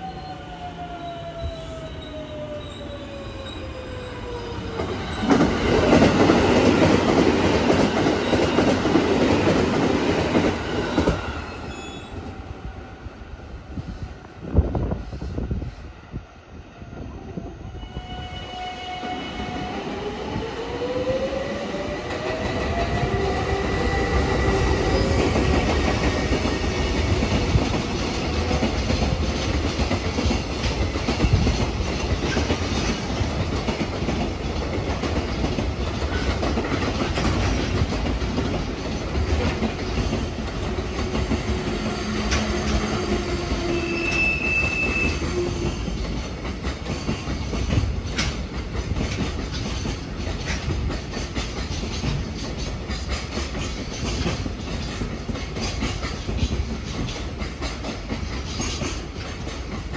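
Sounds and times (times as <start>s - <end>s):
rising train whine: 0.0s - 59.9s
high wheel squeal: 43.6s - 45.8s.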